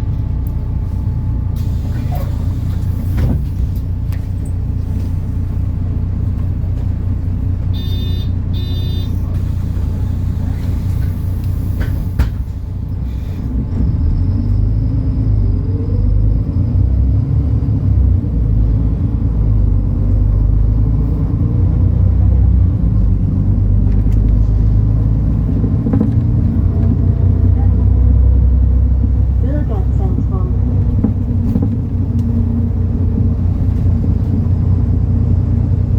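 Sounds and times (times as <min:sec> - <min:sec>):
bus diesel engine rumbling: 0:00.0 - 0:35.9
short beeps: 0:07.7 - 0:09.2.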